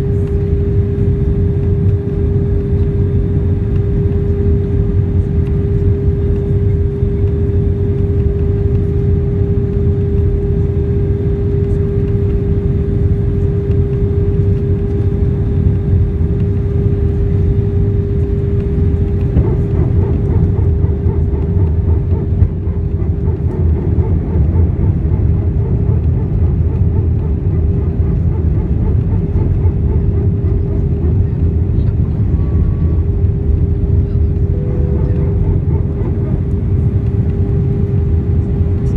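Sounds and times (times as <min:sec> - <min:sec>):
airliner cabin rumble: 0:00.0 - 0:38.9
constant humming tone: 0:00.0 - 0:38.9.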